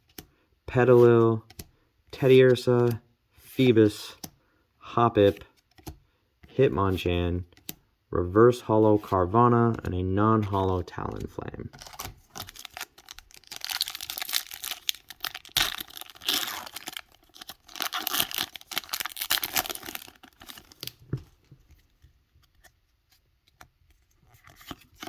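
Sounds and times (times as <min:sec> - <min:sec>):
foil wrapper tearing and crinkling: 0:11.8 - 0:21.0.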